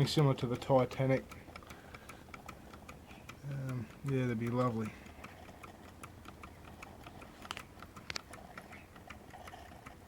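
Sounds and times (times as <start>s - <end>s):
sharp clicks: 0.0s - 10.0s
steam engine ticking: 0.0s - 10.0s.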